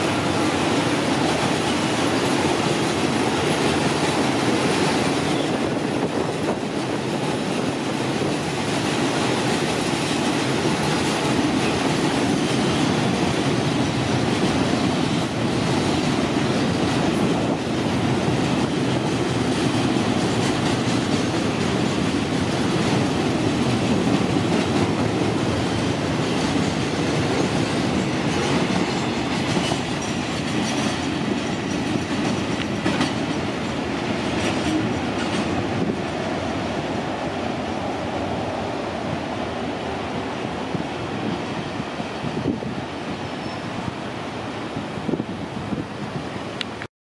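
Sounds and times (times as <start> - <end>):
wheels clicking over rail joints: 0.0 - 36.3
train rumble: 0.0 - 46.9.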